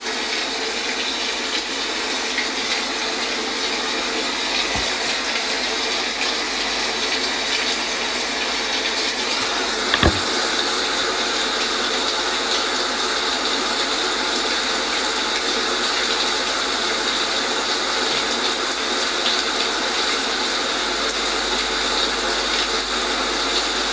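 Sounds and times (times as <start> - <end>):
thumps: 9.1 - 11.1.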